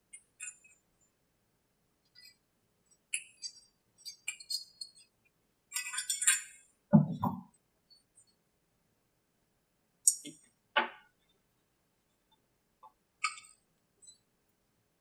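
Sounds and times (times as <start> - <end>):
small metal tools clinking: 5.7 - 6.6.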